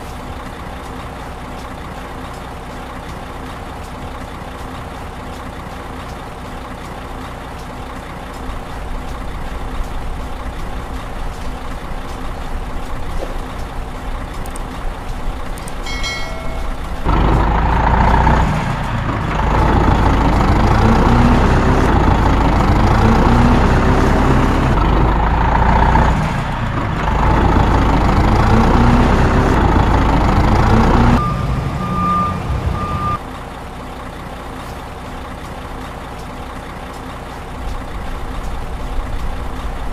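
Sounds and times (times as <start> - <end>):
heavy truck engine accelerating: 0.0 - 39.9
short beep: 31.2 - 33.2
steady beep: 31.2 - 33.2.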